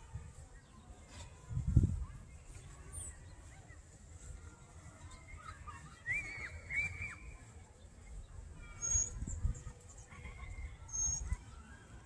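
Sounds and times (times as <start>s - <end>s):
bird warbling whistle: 6.0s - 7.4s
high bird chirps: 8.6s - 9.7s.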